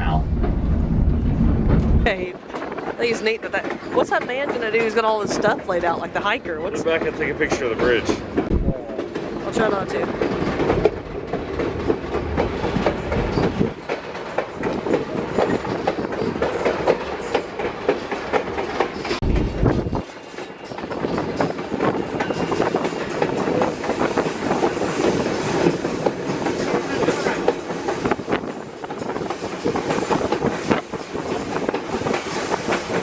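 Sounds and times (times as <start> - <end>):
train rumbling along track: 0.0 - 33.0
wheels clattering over rails: 0.2 - 33.0.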